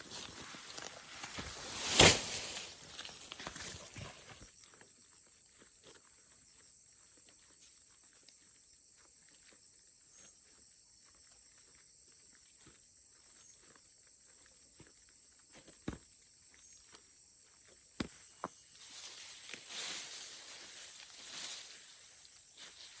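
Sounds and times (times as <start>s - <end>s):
steady high-pitched hiss: 0.0s - 4.5s, 18.1s - 23.0s.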